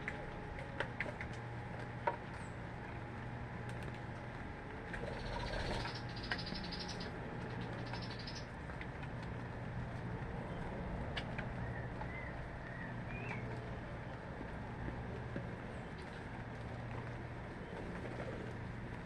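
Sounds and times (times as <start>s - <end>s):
low hum and hiss: 0.0s - 19.0s
small bird chattering trill: 5.0s - 8.5s.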